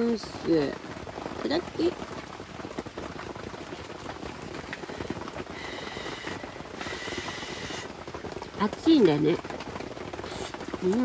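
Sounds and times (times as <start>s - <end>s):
heavy rain pattering: 0.0s - 11.0s.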